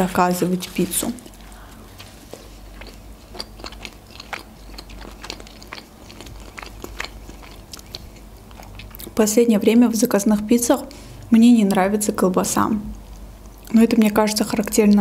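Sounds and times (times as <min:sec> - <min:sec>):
person chewing food: 0:00.6 - 0:09.2.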